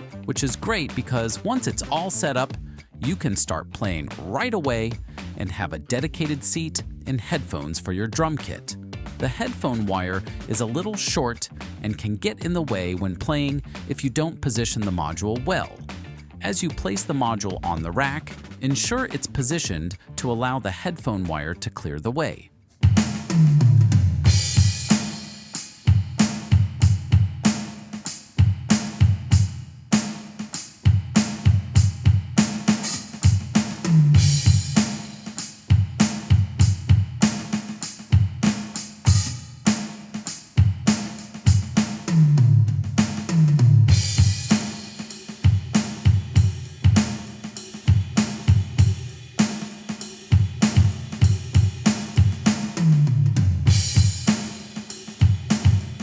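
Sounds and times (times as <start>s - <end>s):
electronic drum kit beat: 0.0s - 21.6s, 22.8s - 56.0s
tom fill: 0.0s - 56.0s
cymbal crash: 24.2s - 40.0s, 43.9s - 52.6s, 53.7s - 56.0s.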